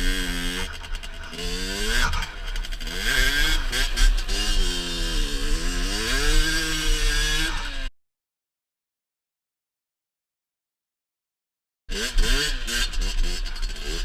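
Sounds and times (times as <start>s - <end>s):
motorcycle engine revving: 0.0s - 7.9s, 11.9s - 14.0s.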